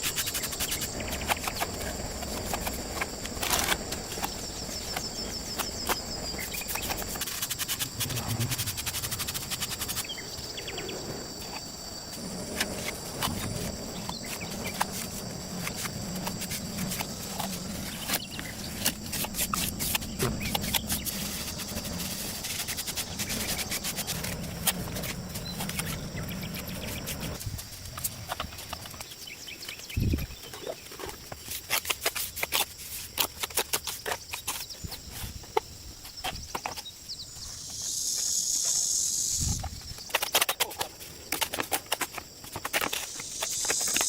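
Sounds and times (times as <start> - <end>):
low hum: 7.6 - 11.1.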